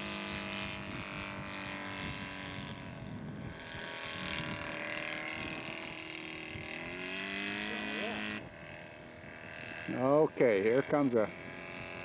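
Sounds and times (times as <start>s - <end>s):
model plane engine droning: 0.0s - 12.0s.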